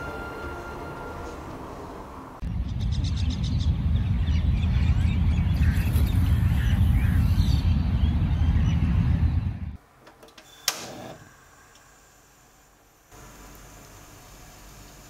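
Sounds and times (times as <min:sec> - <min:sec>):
birds chirping: 0:02.6 - 0:09.7.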